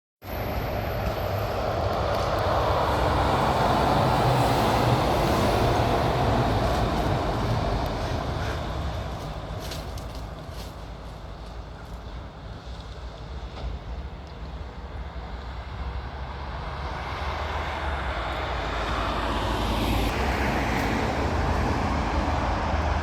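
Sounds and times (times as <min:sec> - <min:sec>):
heavy truck driving past: 0:00.3 - 0:10.7, 0:15.2 - 0:23.0.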